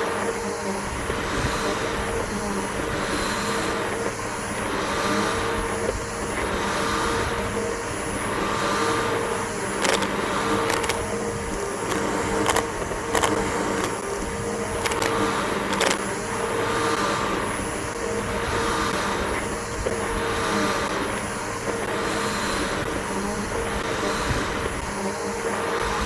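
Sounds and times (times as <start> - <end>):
vacuum cleaner motor whining: 0.0 - 26.0
sharp clicks: 9.8 - 16.1.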